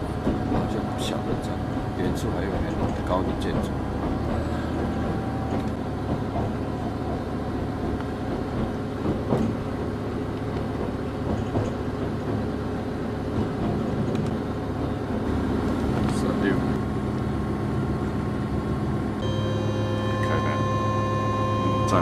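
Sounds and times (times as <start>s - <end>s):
wheels knocking on track: 0.0s - 16.9s
train rumble: 0.0s - 22.0s.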